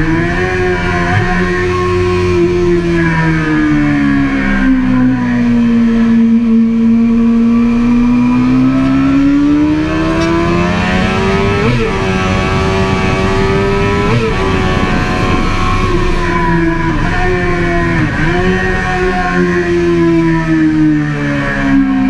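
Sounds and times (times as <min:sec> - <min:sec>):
motorcycle engine at full throttle: 0:00.0 - 0:22.0
rushing wind: 0:09.3 - 0:22.0.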